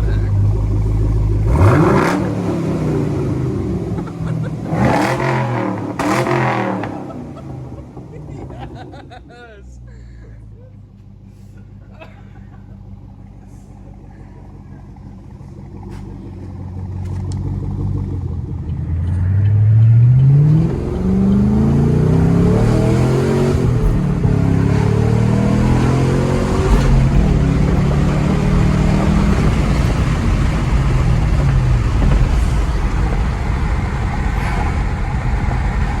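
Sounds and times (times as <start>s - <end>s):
car engine revving: 0.0s - 9.2s, 12.6s - 36.0s.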